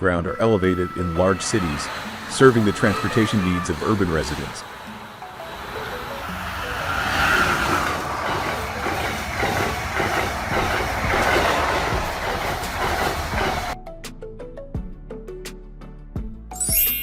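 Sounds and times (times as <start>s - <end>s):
train running noise: 0.0s - 13.8s
train wheels clacking on rail joints: 1.4s - 13.8s.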